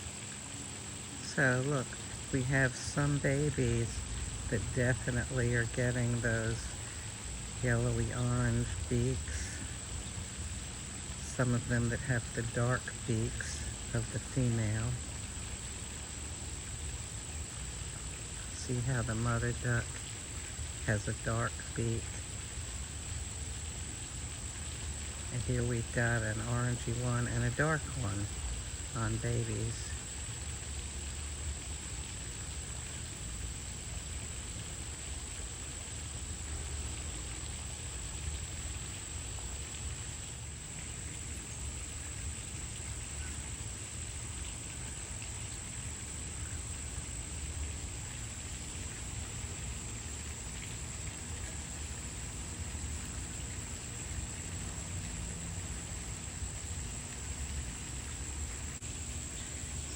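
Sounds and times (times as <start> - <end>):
high-pitched insect chorus: 0.0 - 59.9
steady hiss: 0.0 - 59.9.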